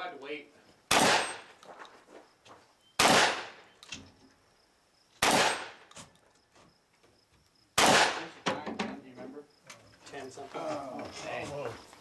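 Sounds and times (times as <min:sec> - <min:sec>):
shotgun shots: 0:00.9 - 0:01.6, 0:03.0 - 0:03.7, 0:05.2 - 0:05.9, 0:07.8 - 0:08.4.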